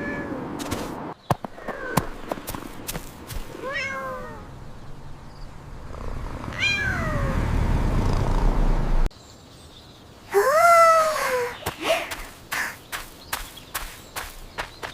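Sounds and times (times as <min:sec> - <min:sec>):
cat meowing: 0:03.6 - 0:04.5, 0:06.5 - 0:07.4.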